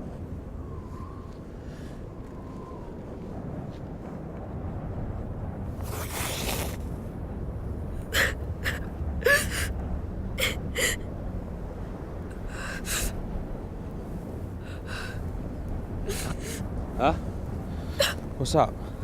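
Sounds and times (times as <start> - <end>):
boy whimpering: 8.1 - 9.7, 10.4 - 11.0, 12.3 - 13.1, 16.1 - 16.6, 18.0 - 18.2
boy gasping shaky breaths: 14.6 - 15.2.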